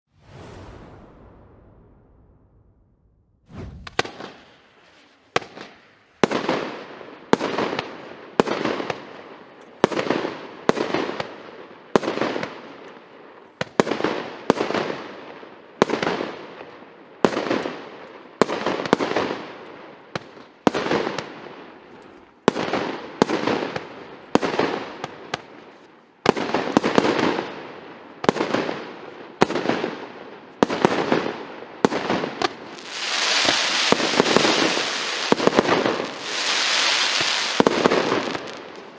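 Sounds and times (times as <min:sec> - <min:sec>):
firework burst hiss: 0:00.1 - 0:05.7, 0:32.8 - 0:38.9
firework bangs: 0:00.1 - 0:09.0, 0:30.6 - 0:38.9.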